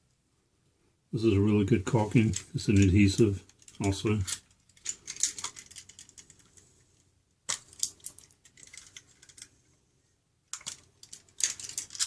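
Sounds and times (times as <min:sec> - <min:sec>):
small clicks and plastic rattles: 0:02.2 - 0:09.6, 0:10.5 - 0:12.0.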